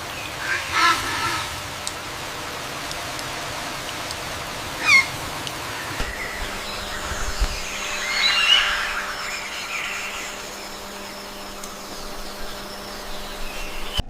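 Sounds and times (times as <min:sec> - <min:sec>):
steady hiss: 0:00.0 - 0:14.0
short bird calls: 0:04.8 - 0:05.2.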